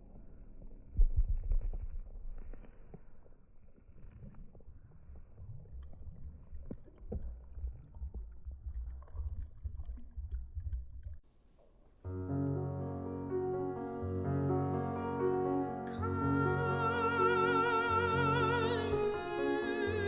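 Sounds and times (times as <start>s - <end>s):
low rumbling noise: 0.0s - 11.2s
piano chords: 12.1s - 20.0s.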